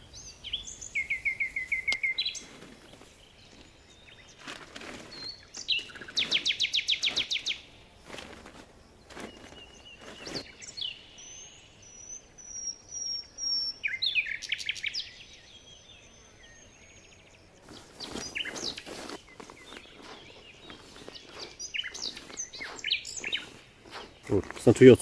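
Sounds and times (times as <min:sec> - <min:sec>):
songbirds singing: 0:00.0 - 0:25.0
fabric rustling: 0:08.0 - 0:10.5, 0:17.6 - 0:24.7.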